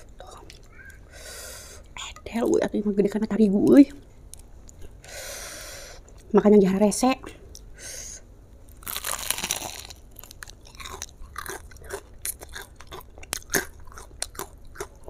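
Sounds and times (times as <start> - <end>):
crunchy chewing of fried chicken: 8.7 - 15.0.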